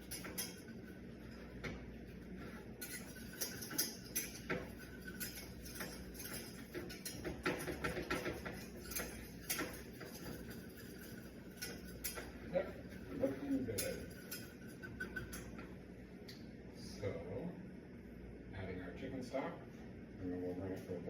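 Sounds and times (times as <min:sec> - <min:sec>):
utensil scraping in a pan: 0:00.0 - 0:15.7.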